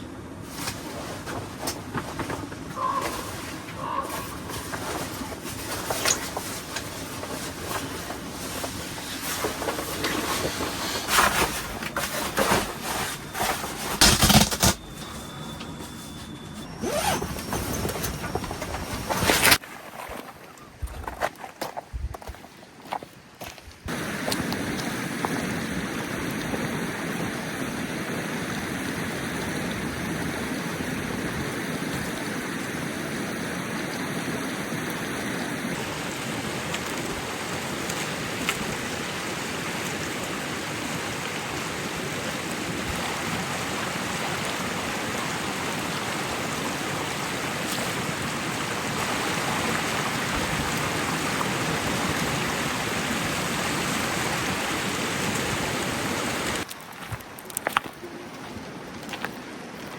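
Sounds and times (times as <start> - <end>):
steady rushing hiss: 23.9 - 37.8.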